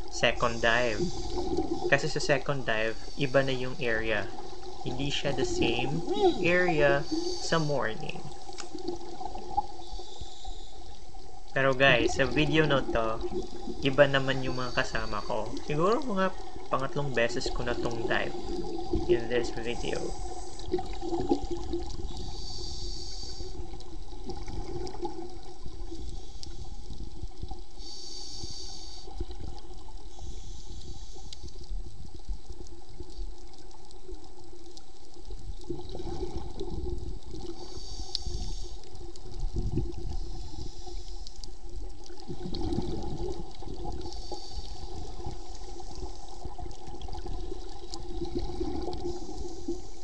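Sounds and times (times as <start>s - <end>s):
low water rush: 0.0s - 9.6s, 11.5s - 22.1s
exhaled air bubbling: 0.0s - 30.5s, 35.2s - 50.0s
faint steady hum: 0.0s - 50.0s
regulator hiss on inhale: 0.5s - 1.9s, 2.9s - 3.6s, 6.9s - 7.7s, 9.5s - 11.4s, 19.7s - 20.8s, 22.0s - 24.1s, 25.6s - 31.7s, 37.4s - 41.9s, 43.5s - 46.8s, 48.6s - 50.0s.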